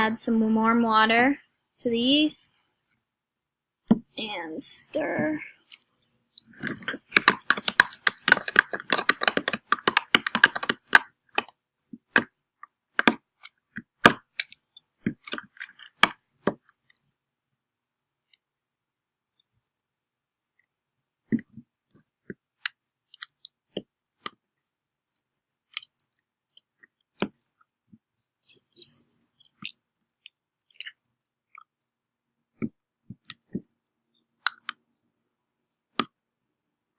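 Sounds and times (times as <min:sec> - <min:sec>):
utensil clicking against container: 0:05.7 - 0:11.5.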